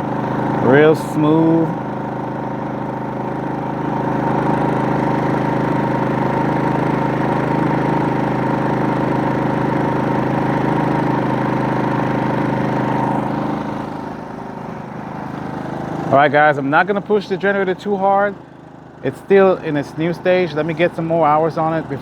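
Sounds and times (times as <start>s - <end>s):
inverter generator running: 0.0s - 22.0s.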